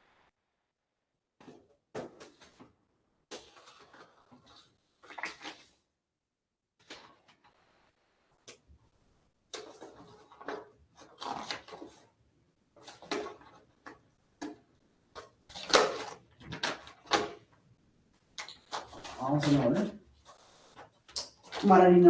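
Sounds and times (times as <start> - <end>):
paper rustling: 1.4 - 5.8, 6.8 - 7.5, 9.5 - 17.5, 18.4 - 22.0.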